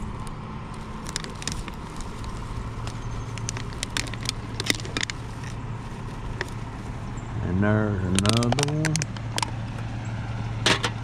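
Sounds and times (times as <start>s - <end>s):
sharp clicks and rattles: 0.0s - 7.0s, 8.0s - 9.6s
vehicle road noise: 0.0s - 11.0s.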